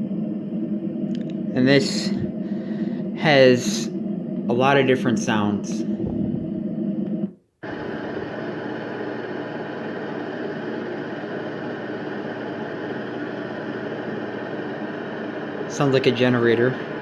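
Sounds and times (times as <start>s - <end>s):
humming machine drone: 0.0s - 17.0s
steady fan sound: 0.0s - 17.0s.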